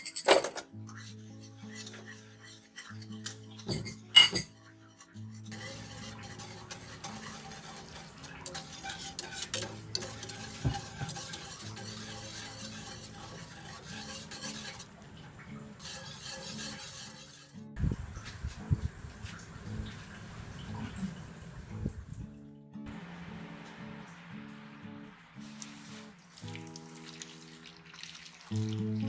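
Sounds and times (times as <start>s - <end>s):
utensil clinking on dish: 0.0s - 0.7s, 1.7s - 4.6s, 5.5s - 17.6s
soft background music: 0.0s - 29.0s
utensil scraping bowl while stirring: 0.8s - 21.2s.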